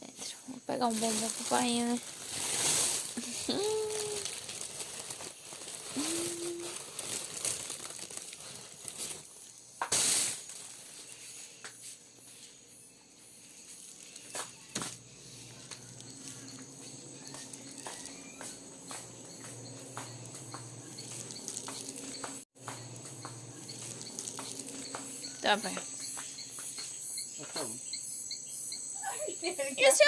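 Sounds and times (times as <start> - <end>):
plastic wrapping crinkling: 0.7 - 11.5, 13.5 - 19.1, 21.0 - 25.1.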